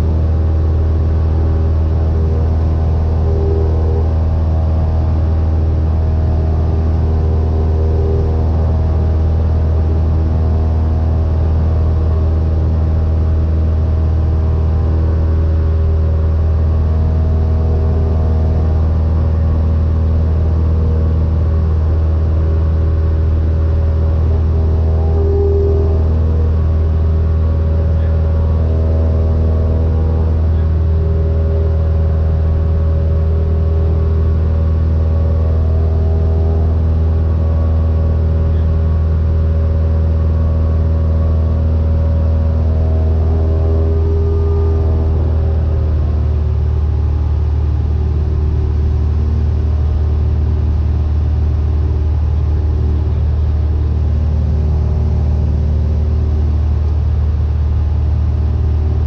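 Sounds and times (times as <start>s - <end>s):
aircraft engine and propeller droning: 0.0s - 59.0s.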